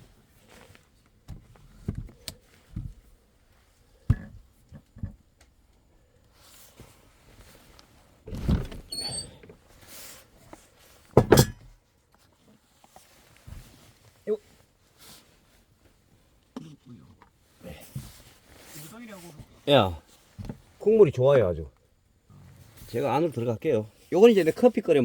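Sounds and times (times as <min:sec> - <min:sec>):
objects knocking and thumping: 0:04.0 - 0:05.2, 0:11.2 - 0:11.7
short squeak: 0:08.8 - 0:09.4
scraping and rustling: 0:17.5 - 0:20.8.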